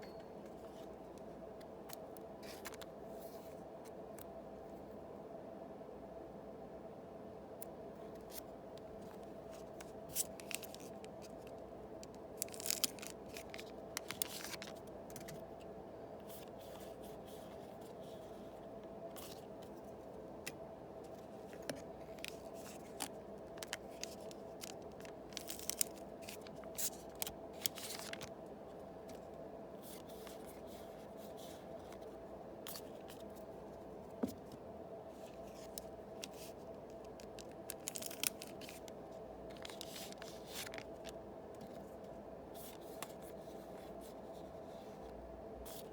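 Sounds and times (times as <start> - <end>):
steady background hum: 0.0 - 45.9
foil wrappers crinkling and tearing: 9.6 - 14.9, 21.6 - 28.3, 35.4 - 41.1.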